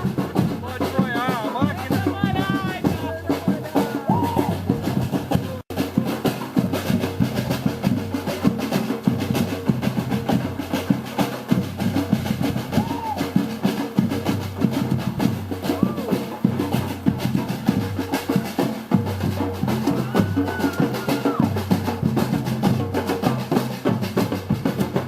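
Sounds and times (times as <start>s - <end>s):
voices calling out: 0.0s - 6.4s, 12.5s - 13.8s, 15.5s - 22.3s
samba percussion band drumming: 0.0s - 25.0s.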